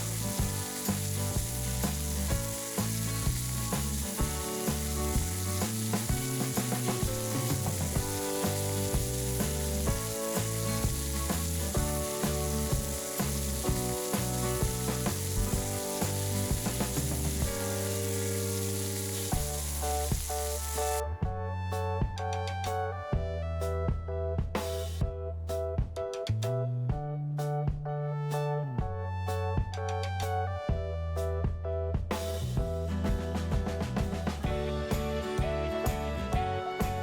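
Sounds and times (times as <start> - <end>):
background music with a beat: 0.0 - 17.8, 21.1 - 28.0, 28.8 - 37.0
food sizzling in a pan: 0.0 - 21.0.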